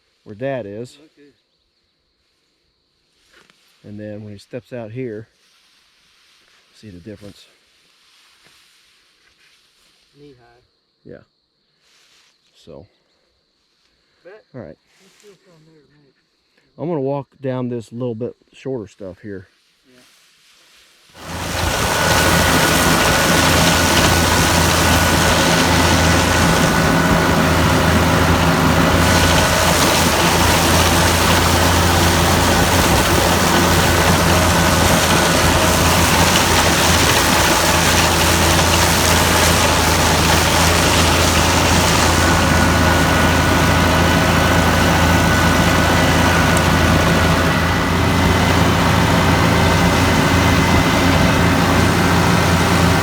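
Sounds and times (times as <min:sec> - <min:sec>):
tractor engine droning: 0:21.2 - 0:53.0.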